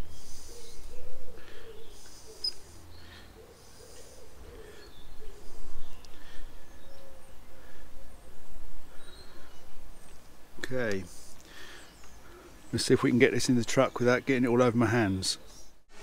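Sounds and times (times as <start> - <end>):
bird cooing: 0.0 - 10.1.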